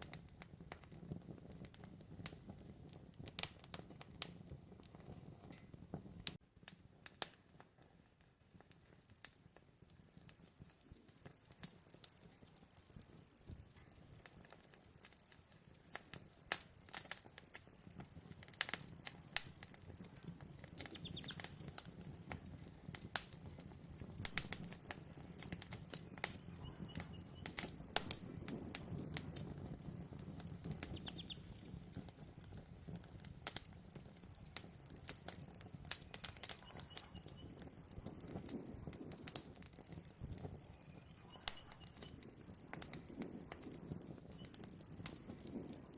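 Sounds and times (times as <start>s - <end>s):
campfire popping and crackling: 0.0s - 45.9s
cricket chirping trill: 9.4s - 45.9s.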